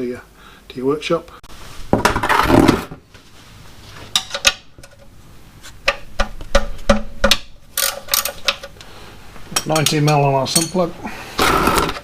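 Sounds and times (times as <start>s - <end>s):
metal tools clinking: 9.5s - 10.9s
metal tools scraping: 9.5s - 11.0s.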